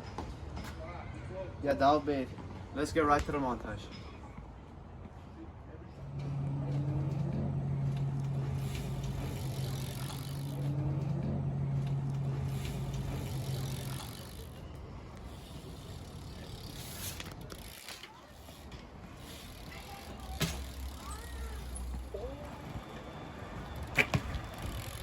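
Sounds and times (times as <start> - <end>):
steady low hum: 5.7 - 17.9
bmx bike being ridden: 5.9 - 25.0.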